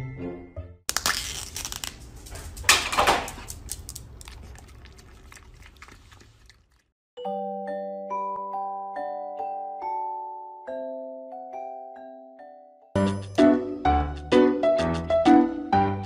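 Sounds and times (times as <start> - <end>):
foil lid crinkling and tearing: 0.9 - 4.3
dog licking: 3.5 - 6.9.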